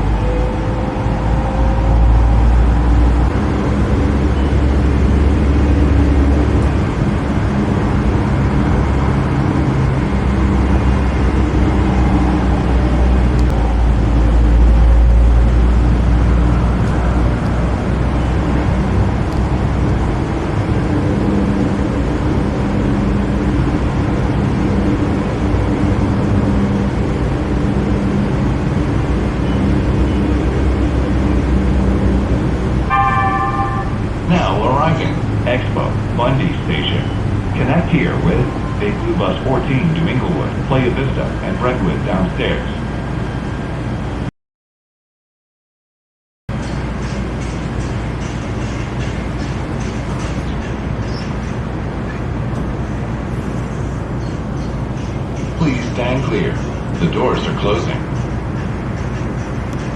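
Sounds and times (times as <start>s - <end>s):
faint hum: 0.0s - 44.2s
train rumble inside car: 0.0s - 44.3s, 46.5s - 59.9s.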